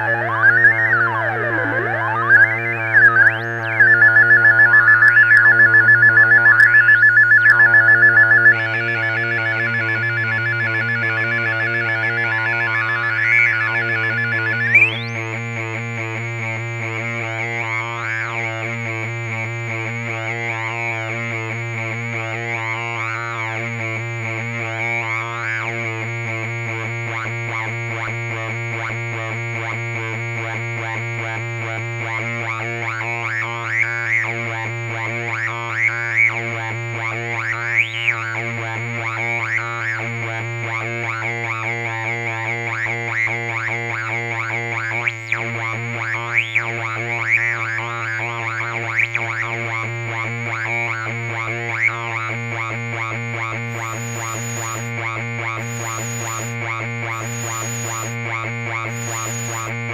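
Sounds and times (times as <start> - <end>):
sharp blips: 0.0 - 11.5
wobbling chirps: 0.0 - 15.1
thin high whine: 0.0 - 15.5, 53.7 - 59.9
analog synth droning: 0.0 - 59.9.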